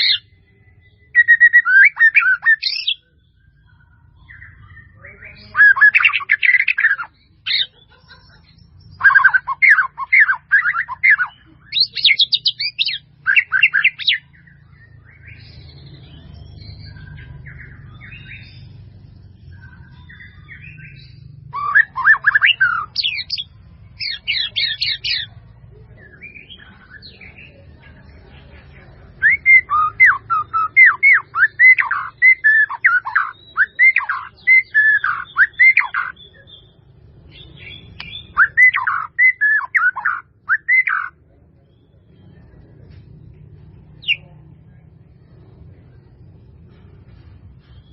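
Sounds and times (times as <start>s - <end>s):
soft bird chirps: 0.0s - 47.9s
bird calling rapid notes: 38.3s - 41.1s.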